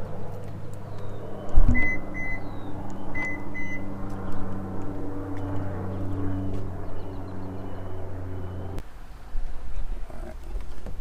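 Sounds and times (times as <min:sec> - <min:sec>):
steady low hum: 0:00.0 - 0:10.6
car warning chime beeps: 0:01.7 - 0:02.5, 0:03.2 - 0:03.9.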